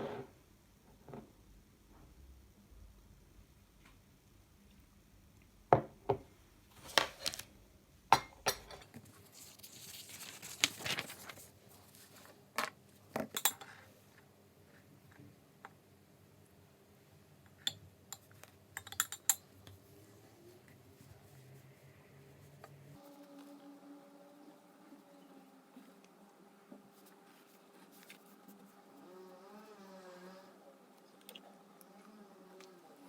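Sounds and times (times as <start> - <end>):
soft rustling: 9.0 - 13.1, 26.8 - 29.0.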